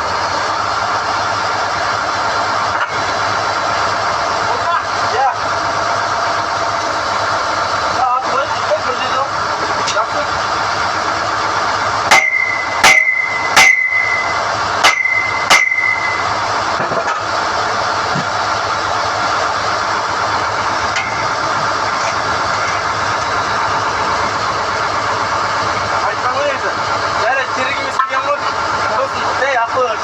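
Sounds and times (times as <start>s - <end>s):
drilling rig engine running: 0.0s - 30.0s
metal-on-metal strikes ringing: 12.1s - 16.4s.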